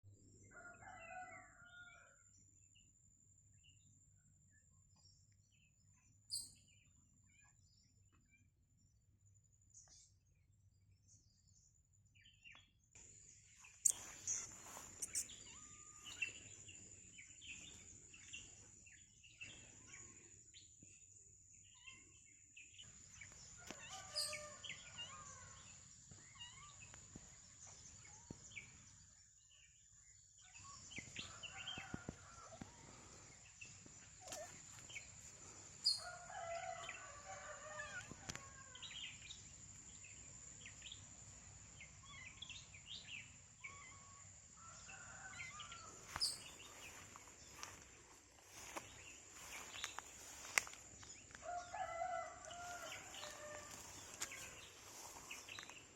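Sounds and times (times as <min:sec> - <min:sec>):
birds chirping: 0:13.6 - 0:18.6.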